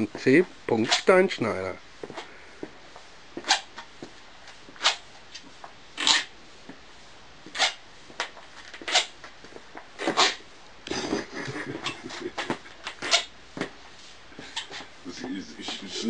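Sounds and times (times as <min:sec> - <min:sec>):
shoe scuffs: 0:02.0 - 0:10.5, 0:12.1 - 0:16.0
sneakers squeaking on hard floor: 0:10.0 - 0:10.4, 0:14.4 - 0:14.9.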